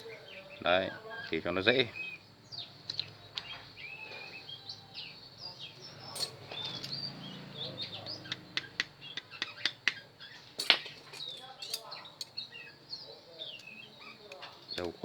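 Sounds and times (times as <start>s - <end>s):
small birds chirping: 0.0s - 15.0s
sharp clicks and taps: 8.3s - 10.0s.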